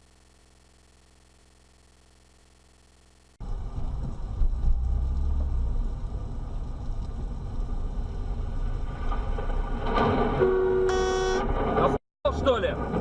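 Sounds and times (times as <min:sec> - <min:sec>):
car engine and road noise: 0:03.2 - 0:13.0.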